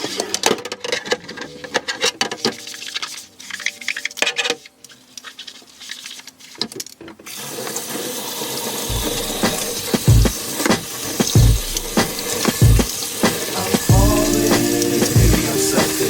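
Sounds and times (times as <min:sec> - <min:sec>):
items clicking and knocking: 0:00.0 - 0:07.3
kitchen tap running: 0:07.3 - 0:16.0
background music bass thumps: 0:08.9 - 0:12.9, 0:13.9 - 0:16.0.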